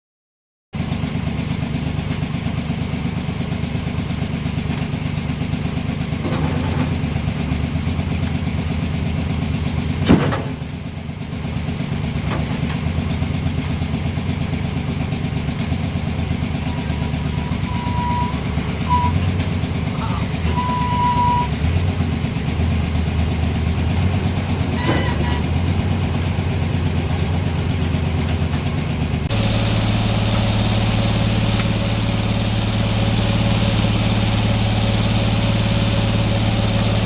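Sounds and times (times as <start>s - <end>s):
engine running steadily: 0.8s - 37.0s
short high beeping tone: 17.4s - 19.2s, 20.0s - 21.5s.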